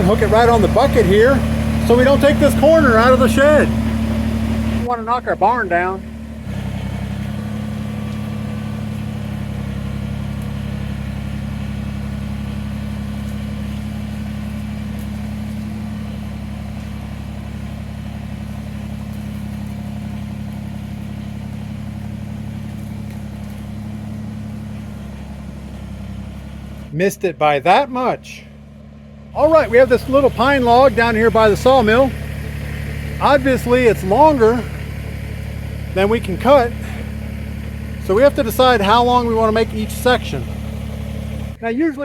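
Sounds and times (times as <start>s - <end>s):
tractor diesel engine under load: 0.0s - 42.0s.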